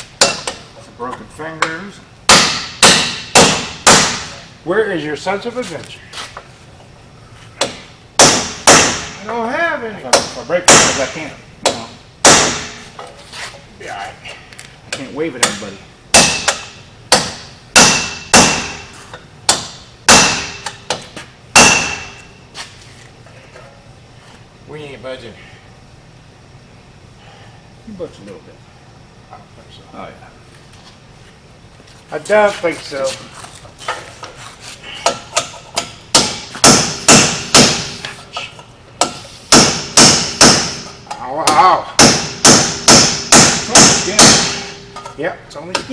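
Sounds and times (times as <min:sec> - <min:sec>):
heavy hammer striking steel: 0:00.2 - 0:00.6, 0:01.6 - 0:04.4, 0:07.6 - 0:09.3, 0:10.1 - 0:12.8, 0:15.4 - 0:18.9, 0:19.5 - 0:22.2, 0:35.0 - 0:38.0, 0:39.0 - 0:45.1
hammer blows on steel: 0:36.1 - 0:38.0.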